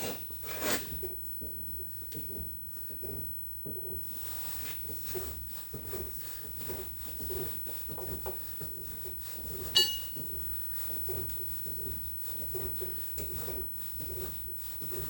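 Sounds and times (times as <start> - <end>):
sharp ringing metal clink: 9.8 - 10.2.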